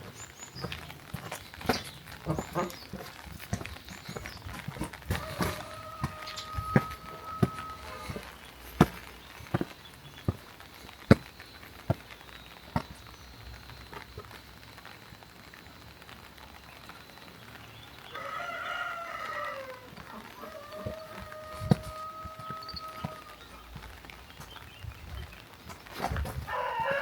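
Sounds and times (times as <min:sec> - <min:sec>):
farm animal calls: 0:01.7 - 0:08.9, 0:18.1 - 0:23.7.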